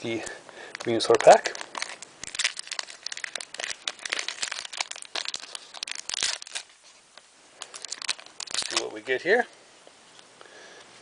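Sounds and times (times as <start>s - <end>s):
foil wrapper crinkling: 0.6s - 9.4s.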